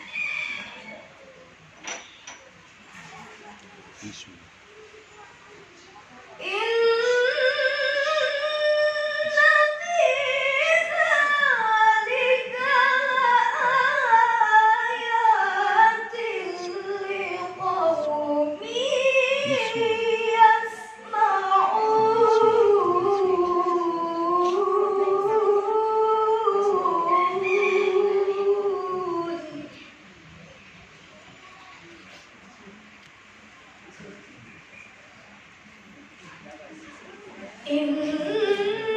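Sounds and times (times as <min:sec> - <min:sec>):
melodic quran recitation: 0:06.4 - 0:29.8, 0:37.7 - 0:38.9.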